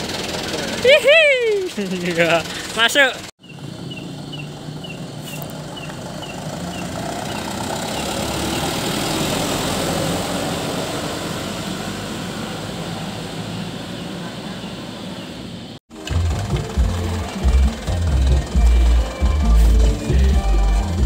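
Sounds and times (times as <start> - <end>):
heavy truck passing: 0.0 - 21.0.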